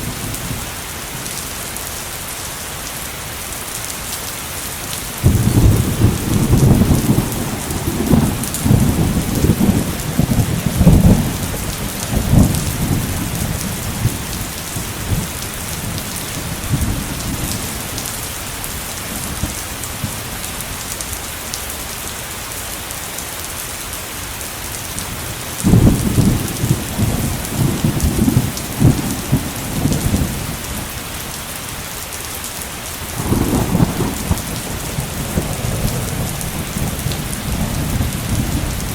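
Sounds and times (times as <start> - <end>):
heavy rain hissing: 0.0 - 38.9
thunder rumbling: 5.2 - 20.4, 25.6 - 31.1, 33.1 - 38.9.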